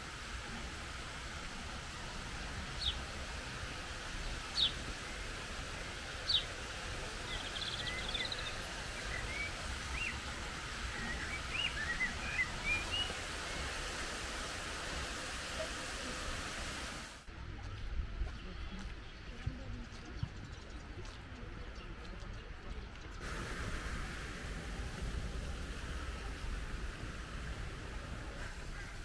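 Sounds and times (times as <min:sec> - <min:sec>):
steady background hiss: 0:00.0 - 0:17.3, 0:23.2 - 0:29.0
bird twittering trill and chirps: 0:07.3 - 0:10.2.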